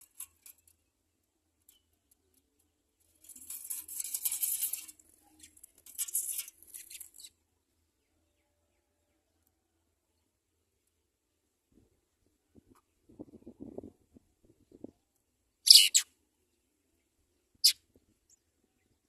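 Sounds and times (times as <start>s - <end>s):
scratchy rustling and clicking: 1.7s - 7.3s.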